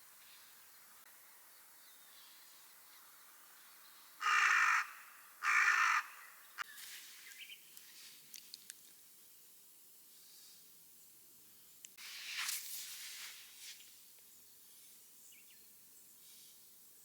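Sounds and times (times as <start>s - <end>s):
crow cawing: 4.2s - 6.6s
faint clicks: 7.3s - 9.0s.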